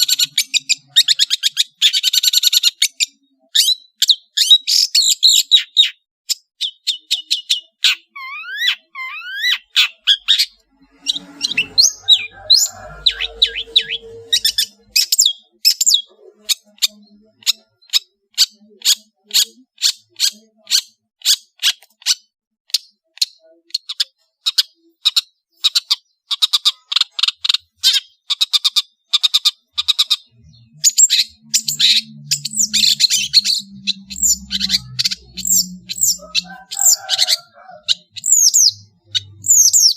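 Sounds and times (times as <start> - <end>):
shrike singing: 8.3 - 16.2, 30.2 - 39.9.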